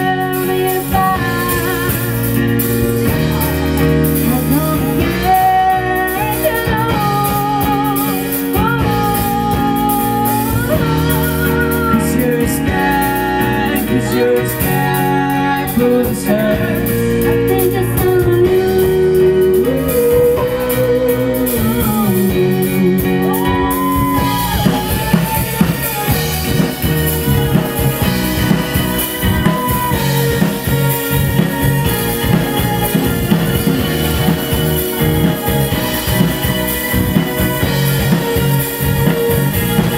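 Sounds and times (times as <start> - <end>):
drums: 0.0 - 39.9
live rock band playing: 0.0 - 39.9.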